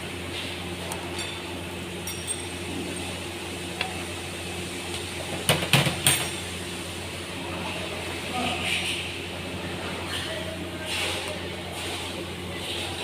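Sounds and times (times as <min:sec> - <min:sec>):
metal tools clinking: 0:02.0 - 0:02.6.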